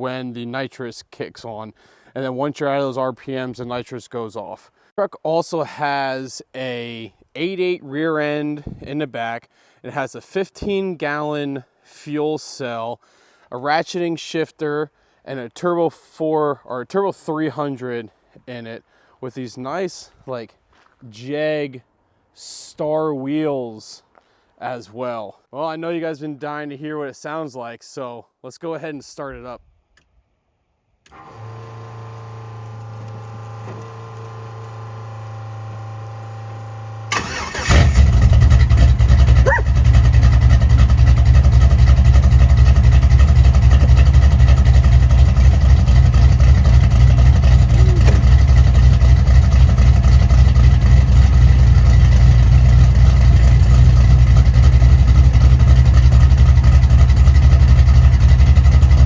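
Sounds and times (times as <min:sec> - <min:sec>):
engine cranking and starting: 0:37.1 - 0:59.0
engine idling loudly: 0:37.2 - 0:59.0.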